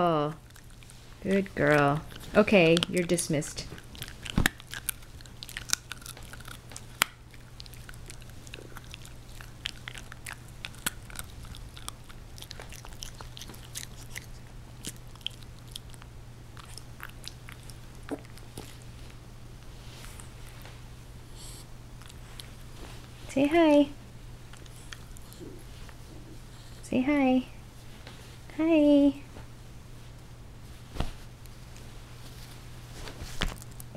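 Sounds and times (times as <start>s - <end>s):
steady low hum: 0.0s - 33.9s
puppy chewing: 0.2s - 20.8s, 21.4s - 23.2s, 24.4s - 26.6s.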